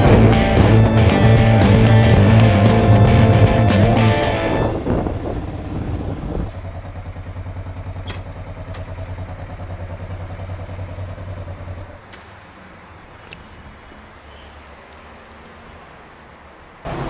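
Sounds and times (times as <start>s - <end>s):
background music: 0.0s - 4.8s
motorcycle engine idling: 5.2s - 12.0s.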